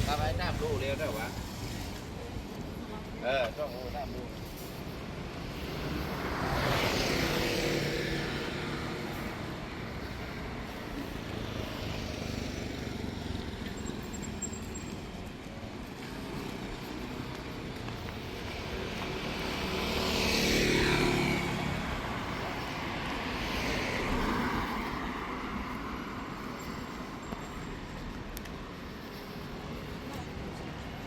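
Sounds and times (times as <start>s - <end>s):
background street traffic: 0.0s - 31.0s
vehicle passing close: 18.8s - 25.6s.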